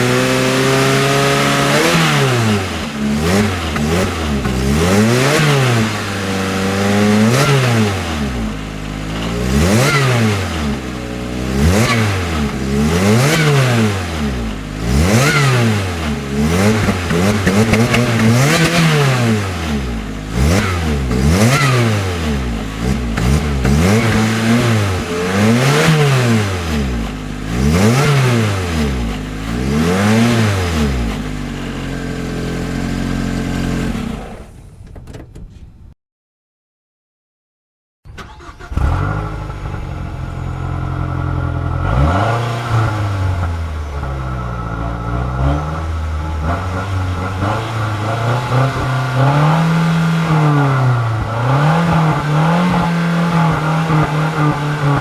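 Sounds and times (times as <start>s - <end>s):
car engine revving: 0.0s - 34.5s, 38.2s - 55.0s
turbocharged car engine starting: 0.0s - 34.8s, 38.1s - 55.0s.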